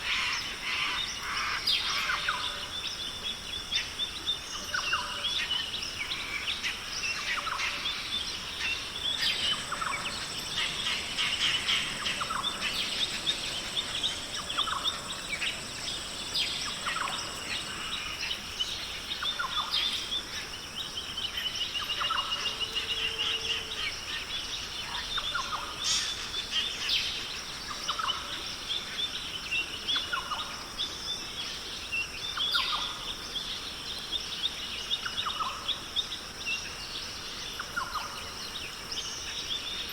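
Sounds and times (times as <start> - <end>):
steady high hiss: 5.9 - 28.7
birds chirping: 8.1 - 20.2
thin high steady tone: 9.0 - 18.5.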